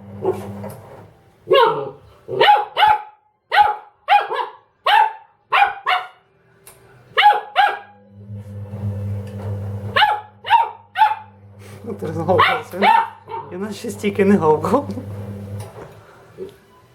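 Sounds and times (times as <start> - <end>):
washing machine hum: 0.0 - 1.7, 7.2 - 16.4
puppy barking: 1.5 - 6.2, 7.2 - 8.0, 9.9 - 11.3, 12.4 - 13.6.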